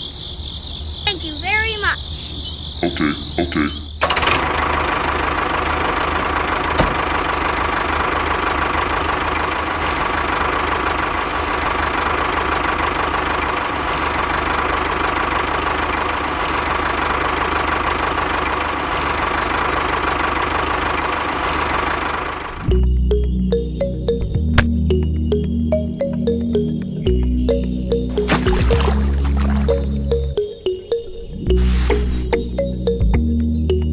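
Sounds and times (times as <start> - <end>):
small engine running: 4.0 - 22.7.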